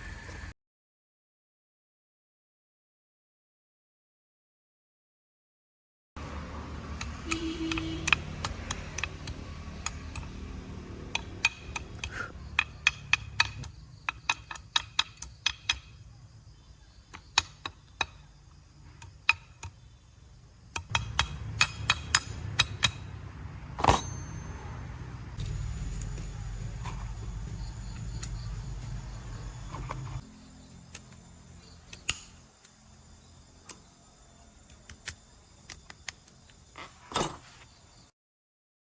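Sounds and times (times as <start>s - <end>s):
low steady hum: 19.9s - 35.5s
tools clinking on metal: 23.8s - 25.6s.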